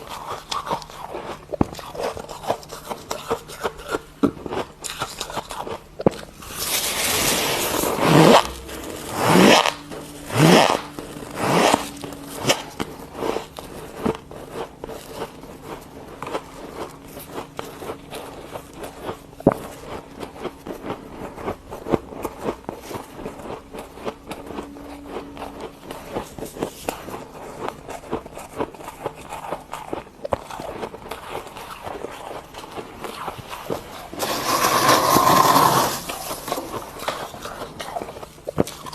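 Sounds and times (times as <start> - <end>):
crunching frost being chewed: 0.0 - 38.9
faint low hum: 0.0 - 38.9
frost being scraped: 6.4 - 15.2, 33.7 - 37.5.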